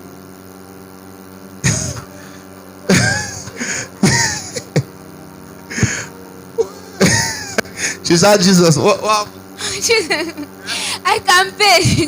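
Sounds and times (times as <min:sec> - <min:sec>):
steady electrical hum: 0:00.0 - 0:12.0
woman crying out and gasping: 0:01.7 - 0:04.9, 0:10.6 - 0:11.1.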